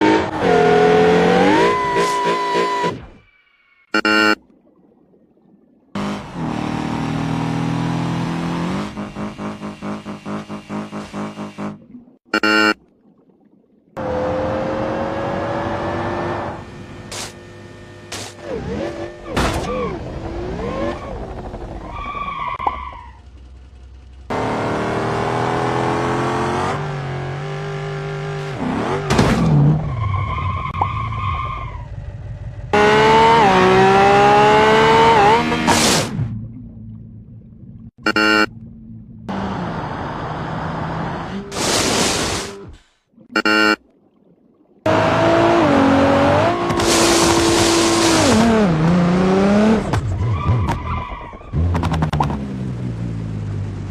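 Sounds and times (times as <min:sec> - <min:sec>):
sports car engines revving: 0:06.0 - 0:11.8, 0:23.5 - 0:29.1, 0:32.1 - 0:35.8, 0:44.9 - 0:50.0.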